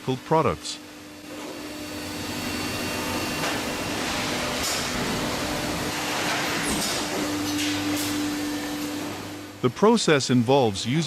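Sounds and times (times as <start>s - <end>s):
heavy machinery running: 1.3s - 9.6s.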